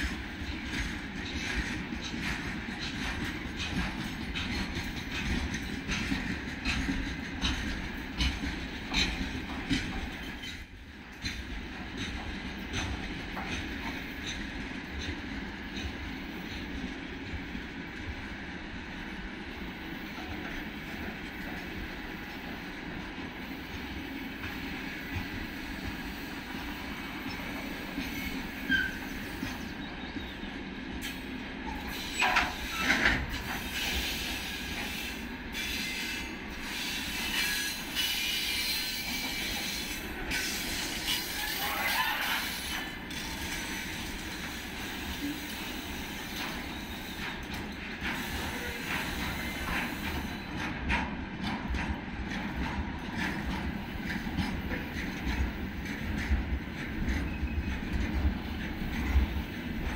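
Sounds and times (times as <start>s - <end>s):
freight train wagons rolling: 0.0s - 17.6s, 19.8s - 59.9s
high wheel squeals: 28.1s - 29.2s.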